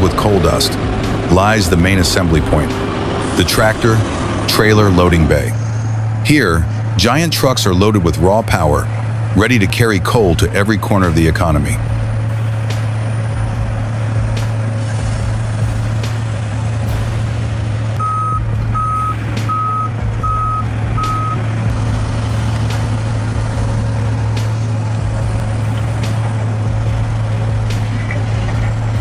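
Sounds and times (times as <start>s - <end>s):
truck engine droning: 0.0s - 29.0s
reversing alarm beeps: 18.0s - 21.4s.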